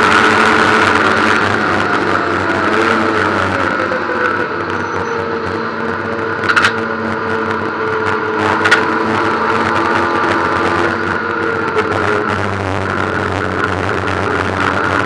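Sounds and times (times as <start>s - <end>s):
race car engine running: 0.0s - 15.0s
short sharp clacks: 8.5s - 8.9s.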